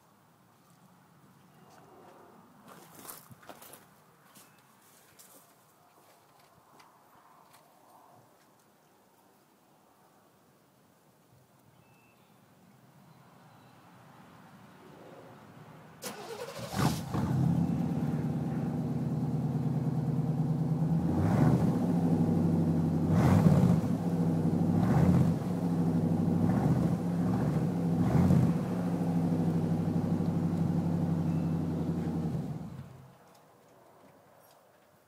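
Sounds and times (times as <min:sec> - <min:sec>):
pickup engine cranking: 0:16.0 - 0:18.4
engine throttle revs: 0:16.0 - 0:33.1
engine idling: 0:16.1 - 0:33.0.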